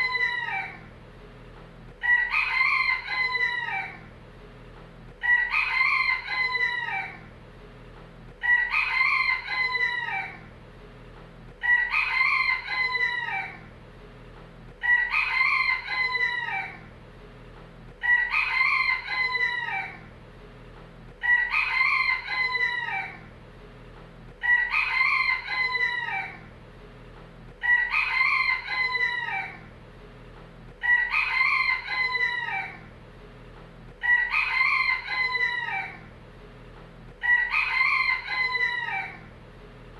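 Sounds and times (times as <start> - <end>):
rooster crowing: 0.0 - 0.9, 2.0 - 4.1, 5.2 - 7.3, 8.4 - 10.5, 11.6 - 13.7, 14.8 - 16.9, 18.0 - 20.1, 21.2 - 23.3, 24.4 - 26.5, 27.6 - 29.7, 30.8 - 32.9, 34.0 - 36.1, 37.2 - 39.3.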